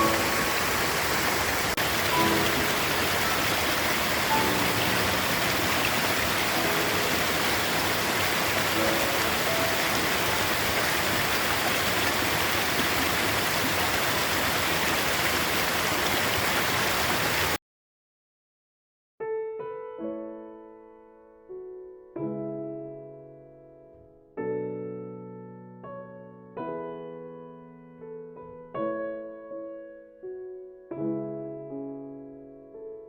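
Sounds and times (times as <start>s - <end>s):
small waterfall rushing: 0.0s - 17.6s.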